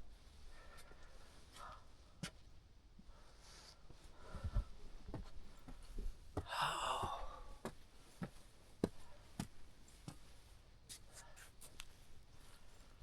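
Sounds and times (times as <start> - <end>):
person exhaling: 6.5 - 7.6.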